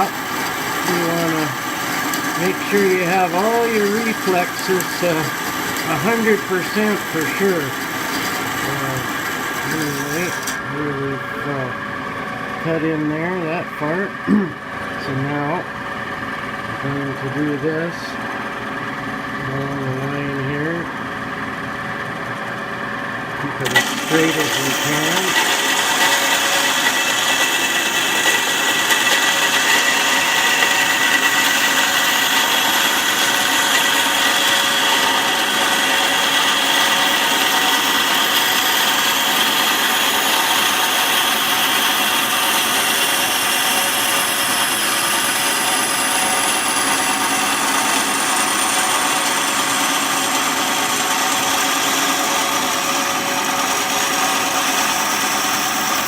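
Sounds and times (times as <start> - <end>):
bandsaw cutting: 0.0 - 10.8, 23.4 - 56.0.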